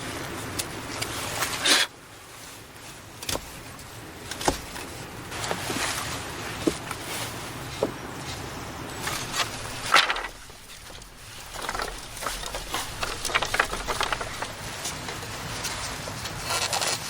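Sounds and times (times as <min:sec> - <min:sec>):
rustling: 0:09.0 - 0:15.7.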